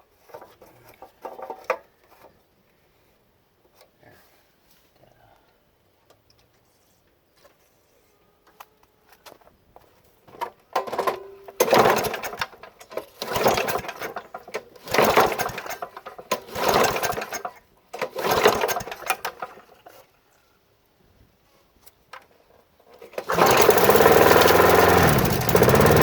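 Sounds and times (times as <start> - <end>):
lawn mower engine turning over: 10.3 - 19.9, 23.0 - 26.0
recoil starter pulls: 10.8 - 19.7, 23.0 - 26.0
lawn mower engine running: 11.6 - 19.6, 23.1 - 26.0.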